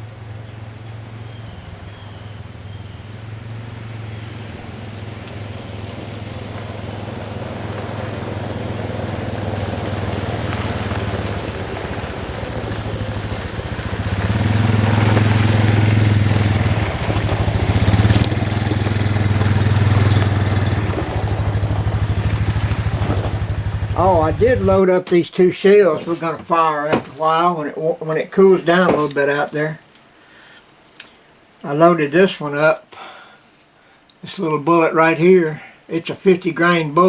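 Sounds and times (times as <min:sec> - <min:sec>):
engine idling: 0:00.0 - 0:24.8.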